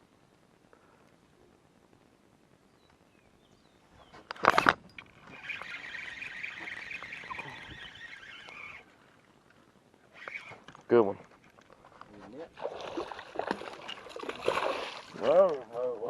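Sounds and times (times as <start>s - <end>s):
fishing reel whirring: 4.4s - 8.9s, 10.1s - 10.7s.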